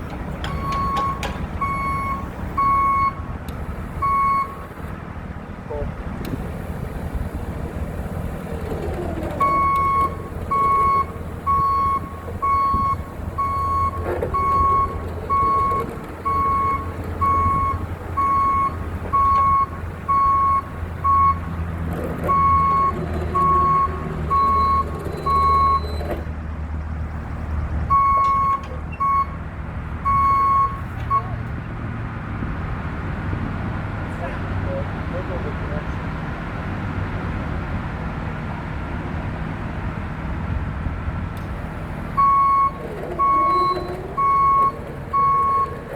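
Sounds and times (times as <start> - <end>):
diesel engine running: 0.0 - 45.9
backup alarm beeping: 0.4 - 3.3, 9.4 - 21.5, 27.9 - 29.4, 30.0 - 31.3
short squeals: 42.3 - 45.9.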